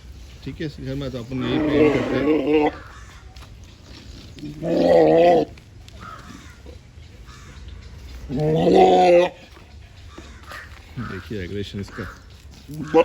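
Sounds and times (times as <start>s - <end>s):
goat bleating: 1.4s - 3.0s, 8.3s - 9.6s, 12.7s - 13.0s.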